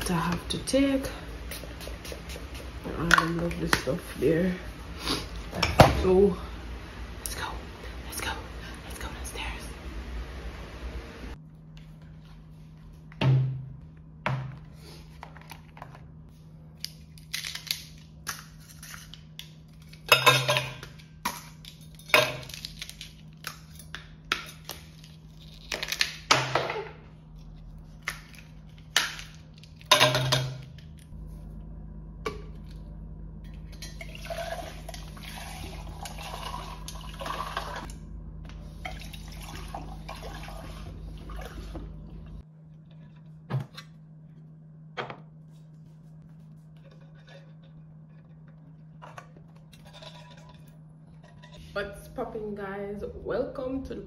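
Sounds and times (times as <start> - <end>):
dishes and utensils clattering: 20.1 - 20.9
water running into a bucket: 34.0 - 37.9, 38.8 - 42.0.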